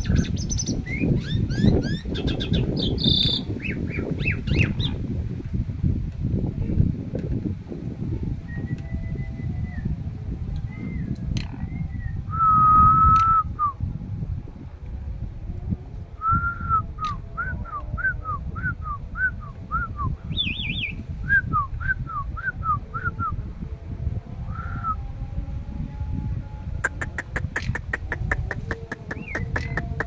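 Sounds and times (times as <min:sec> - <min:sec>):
starling whistling song: 0:00.0 - 0:05.0, 0:08.4 - 0:13.8, 0:16.2 - 0:23.4, 0:24.5 - 0:25.0, 0:26.9 - 0:30.0
steady low rumble: 0:00.0 - 0:30.0.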